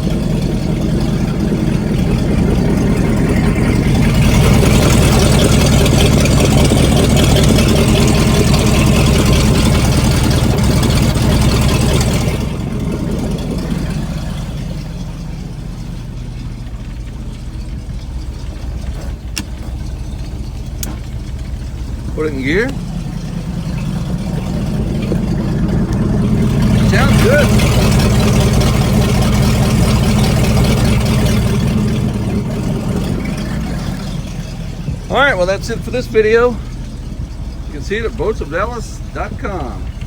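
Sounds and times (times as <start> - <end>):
boat engine idling: 0.0 - 40.0.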